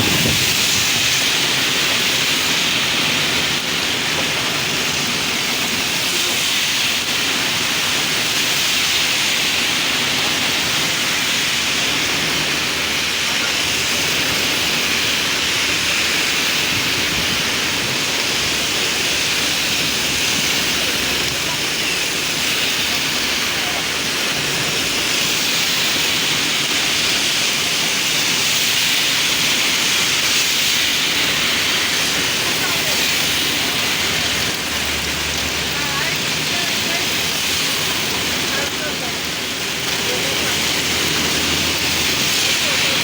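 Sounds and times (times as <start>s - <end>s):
heavy rain falling: 0.0s - 43.0s.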